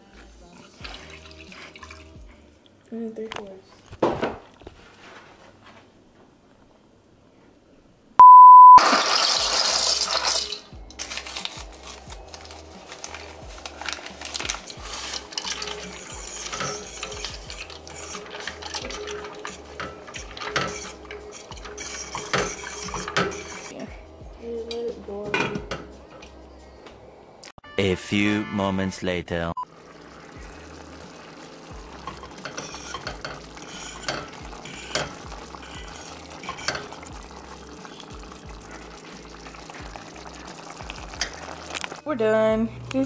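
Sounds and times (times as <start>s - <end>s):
loud steady beep: 8.2s - 8.8s
utensil scraping a saucepan: 9.1s - 23.8s, 30.4s - 41.8s.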